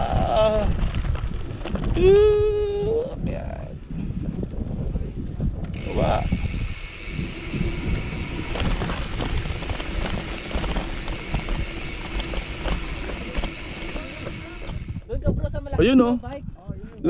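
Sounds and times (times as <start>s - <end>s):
wind rushing over microphone: 0.0s - 17.0s
bike clicks and rattles: 0.1s - 2.9s, 4.0s - 15.1s
tyres crunching over dirt: 0.5s - 2.0s, 5.8s - 15.0s.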